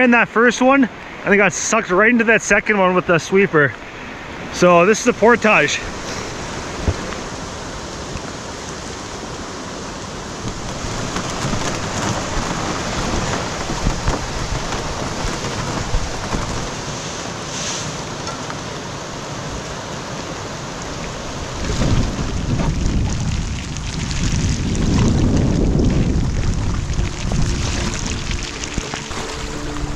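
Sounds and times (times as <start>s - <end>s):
river rapids rushing: 2.9s - 22.6s, 25.6s - 29.9s
low rumble: 21.5s - 29.9s.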